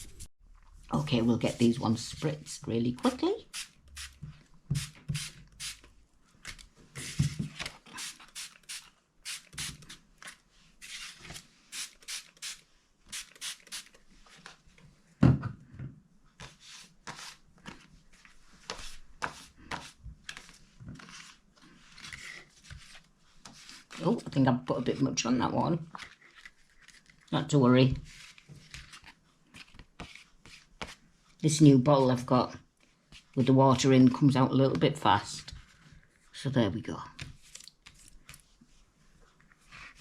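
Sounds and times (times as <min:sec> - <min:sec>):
spray bottle hissing: 0:08.0 - 0:09.8, 0:11.7 - 0:13.9.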